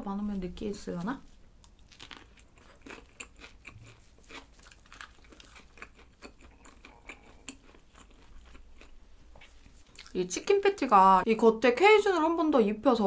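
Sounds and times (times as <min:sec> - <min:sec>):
crunchy chewing: 0:01.6 - 0:10.2.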